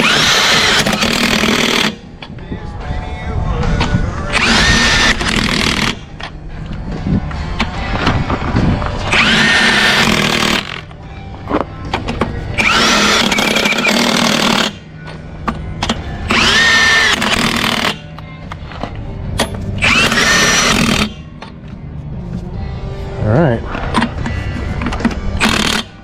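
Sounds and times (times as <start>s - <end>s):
impact wrench whining: 0.0s - 2.1s, 4.3s - 6.3s, 9.0s - 11.0s, 12.1s - 18.1s, 19.4s - 21.6s, 23.9s - 26.0s.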